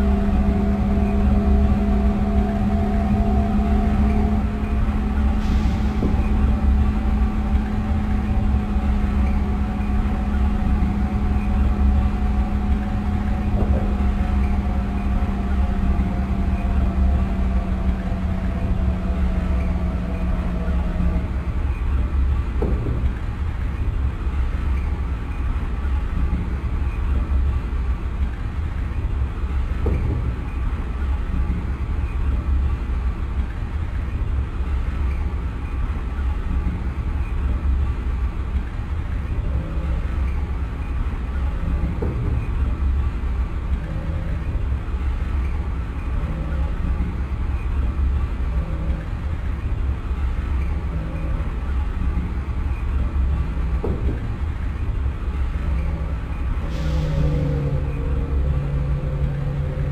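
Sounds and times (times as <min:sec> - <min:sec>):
faint steady tones: 0:00.0 - 0:59.9
metro train rumbling: 0:00.0 - 0:59.9
train knocks: 0:05.0 - 0:21.4, 0:53.8 - 0:54.4.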